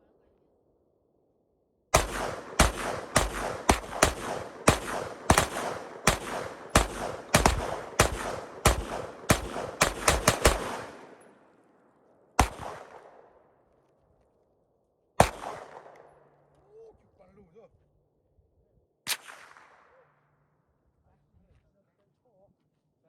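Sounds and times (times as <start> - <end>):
gunshots with echo: 1.9 - 11.6, 12.4 - 13.4, 15.2 - 16.4.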